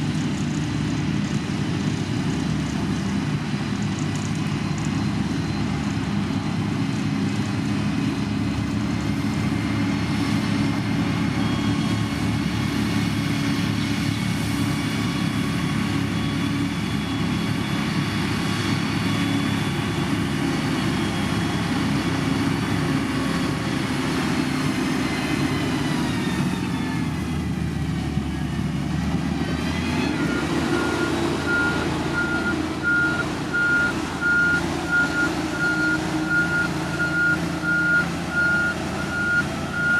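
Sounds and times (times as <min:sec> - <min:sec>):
heavy machine engine running: 0:00.0 - 0:39.9
reversing alarm beeping: 0:30.1 - 0:39.9.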